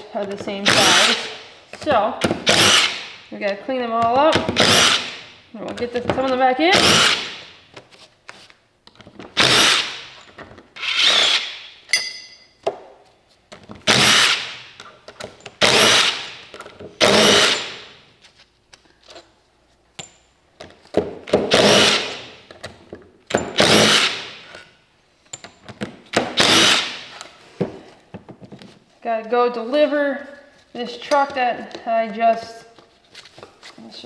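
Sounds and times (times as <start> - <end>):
power drill bursts: 2.4 - 3.2, 4.6 - 5.2, 6.7 - 7.5, 9.4 - 10.2, 10.8 - 11.6, 13.9 - 14.6, 15.6 - 16.4, 17.0 - 17.9, 21.5 - 22.3, 23.6 - 24.4, 26.4 - 27.1
metallic ring: 11.9 - 12.6.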